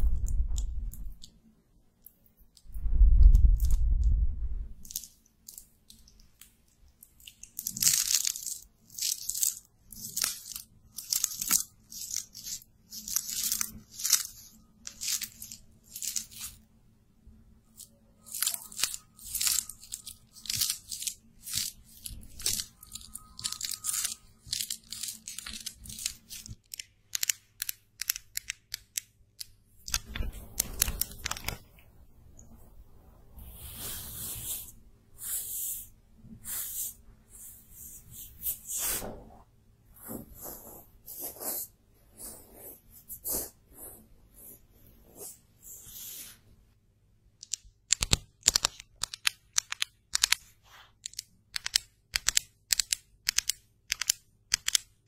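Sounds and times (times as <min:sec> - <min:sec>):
scratchy makeup brush strokes: 0:33.4 - 0:39.4, 0:40.0 - 0:46.4.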